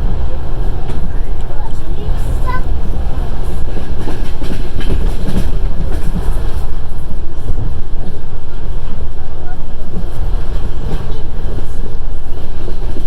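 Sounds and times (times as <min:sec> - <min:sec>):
wheels clacking over rail joints: 0:00.0 - 0:08.2
train wheels rumbling: 0:00.0 - 0:13.0.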